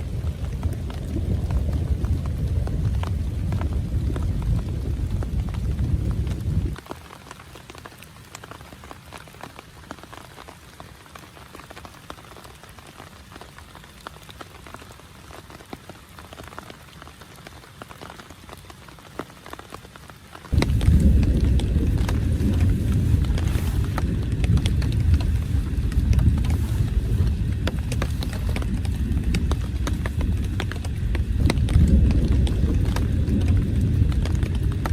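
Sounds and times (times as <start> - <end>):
rain pattering on a tent: 0.0 - 34.9
loud low rumble: 20.5 - 34.9.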